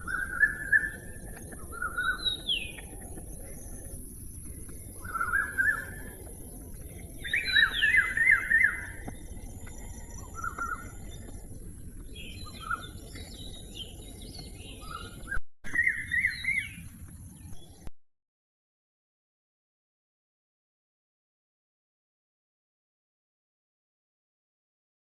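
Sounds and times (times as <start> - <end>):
steady background hiss: 0.0 - 13.2.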